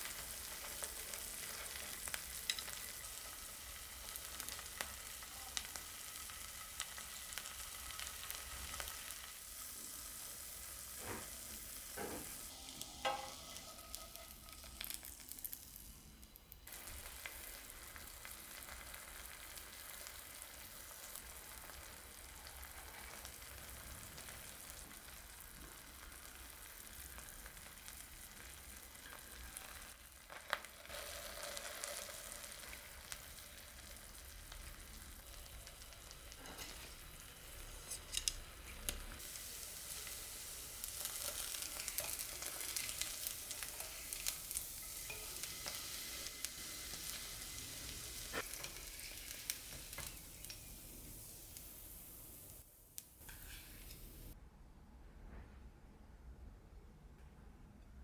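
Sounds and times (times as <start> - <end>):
food sizzling in a frying pan: 0.0 - 54.4
utensils knocking against pan: 13.0 - 14.3.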